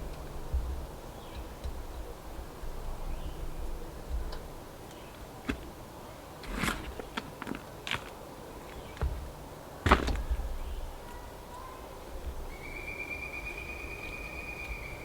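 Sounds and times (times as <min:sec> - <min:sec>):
plant pots clicking and scraping: 0:04.3 - 0:10.4.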